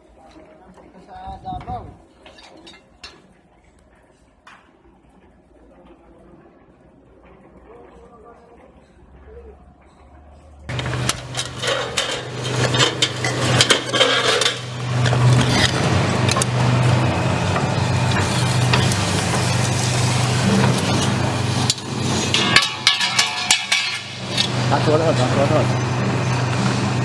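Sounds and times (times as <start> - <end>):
machine motor hum: 10.6 - 27.0
sheet metal clattering: 10.7 - 26.3.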